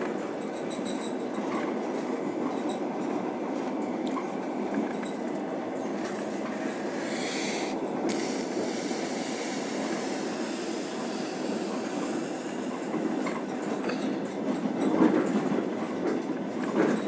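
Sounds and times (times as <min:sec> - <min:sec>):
train wheels rumbling on rails: 0:00.0 - 0:17.0
high hiss: 0:06.2 - 0:13.6.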